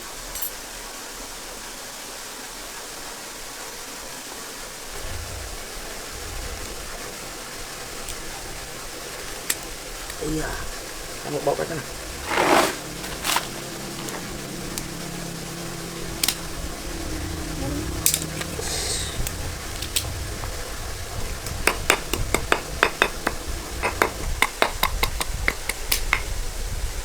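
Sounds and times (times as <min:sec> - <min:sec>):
metal clinking and tapping: 0:00.3 - 0:00.6, 0:21.5 - 0:26.3.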